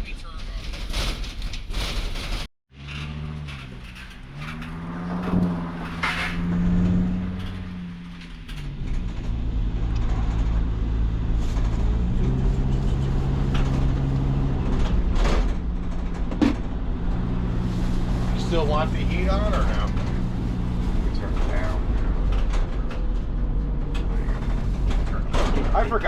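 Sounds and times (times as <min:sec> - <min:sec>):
low road rumble: 0:00.0 - 0:26.0
van diesel engine from inside cab: 0:08.8 - 0:26.0.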